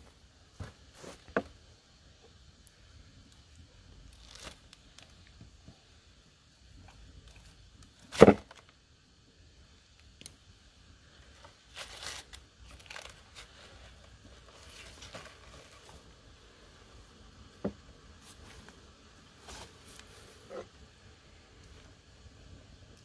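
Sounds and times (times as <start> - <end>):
rustling and crinkling: 0.0 - 2.4, 3.3 - 5.9, 11.1 - 16.4, 17.6 - 20.8.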